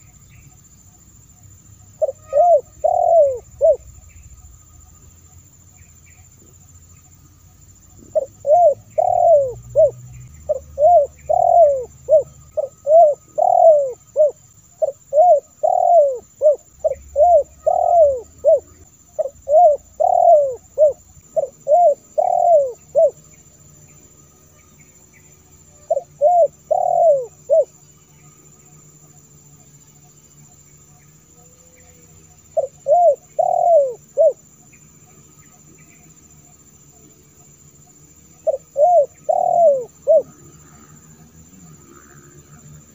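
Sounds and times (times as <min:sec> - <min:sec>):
dove cooing: 0:01.9 - 0:04.4, 0:07.8 - 0:23.3, 0:25.9 - 0:27.8, 0:31.6 - 0:34.5, 0:38.4 - 0:41.1.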